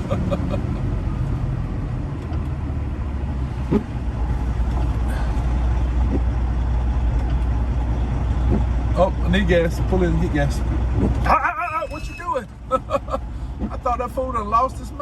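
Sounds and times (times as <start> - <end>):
road noise: 0.0 - 15.0
truck diesel engine droning: 0.0 - 15.0.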